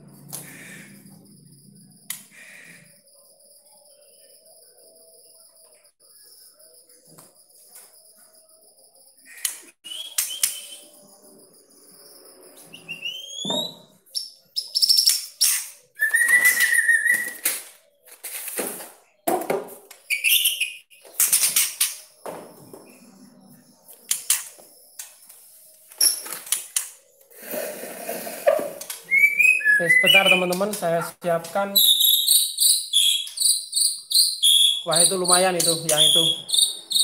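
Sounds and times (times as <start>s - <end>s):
bird whistled calls and chirps: 9.3s - 11.1s, 12.5s - 17.6s, 20.0s - 21.6s, 29.0s - 37.0s.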